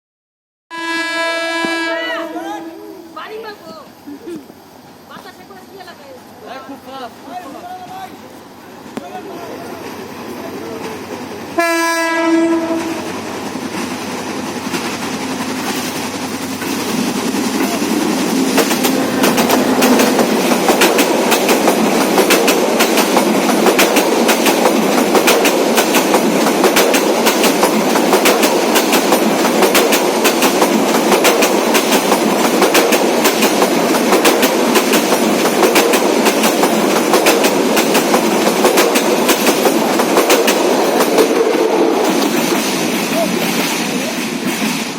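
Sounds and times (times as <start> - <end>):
train rumble: 0.9 - 44.9
train wheels clacking: 9.8 - 44.9.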